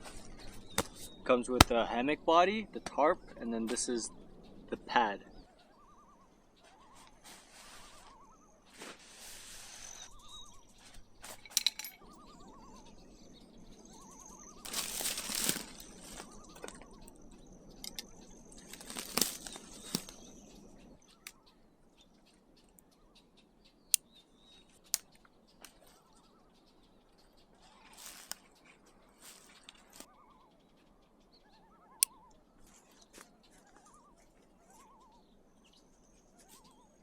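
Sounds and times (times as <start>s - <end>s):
camping gear rustling: 0.0s - 1.9s, 6.7s - 21.4s, 27.3s - 30.1s
faint bird calls: 0.0s - 37.0s
sharp clicks: 14.6s - 21.4s.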